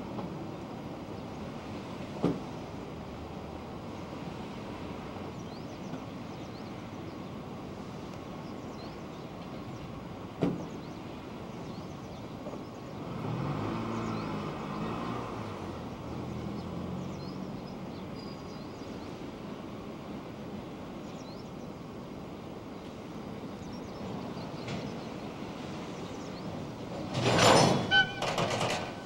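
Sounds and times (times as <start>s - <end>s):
steady outdoor noise: 0.0s - 29.0s
locomotive humming drone: 25.3s - 29.0s.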